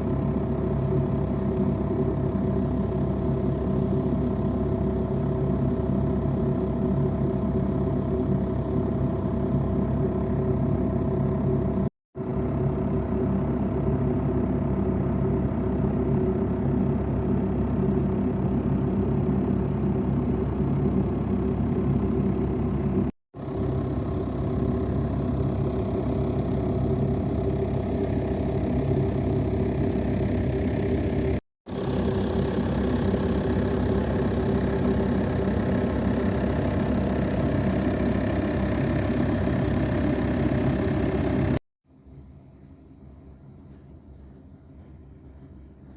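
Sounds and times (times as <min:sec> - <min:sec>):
car engine running: 0:21.0 - 0:41.6.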